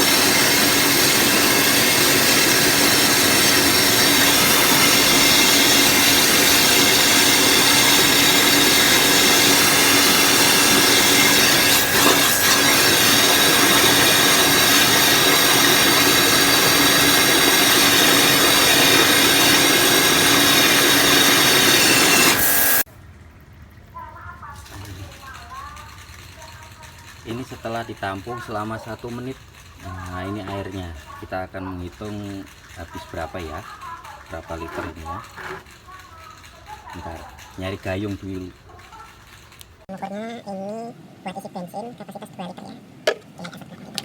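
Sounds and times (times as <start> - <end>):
pressure washer motor whining: 0.0 - 22.9
water spraying: 0.0 - 22.9.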